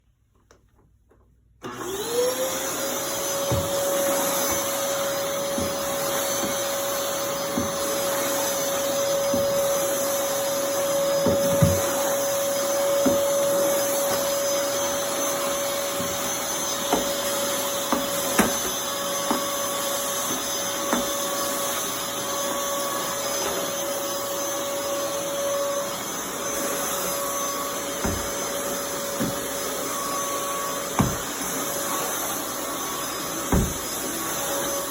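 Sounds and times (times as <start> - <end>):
vacuum cleaner motor running: 1.6 - 34.9
cleaner head knocking: 33.4 - 34.0.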